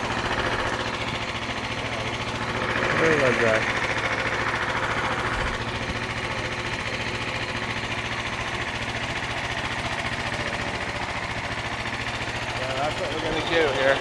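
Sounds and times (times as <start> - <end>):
small gas engine running: 0.0 - 14.0.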